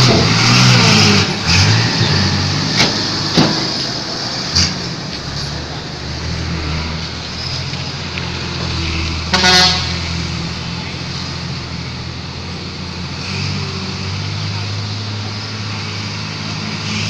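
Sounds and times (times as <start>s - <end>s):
diesel truck engine running: 0.0s - 17.0s
truck horn toot: 9.2s - 10.5s.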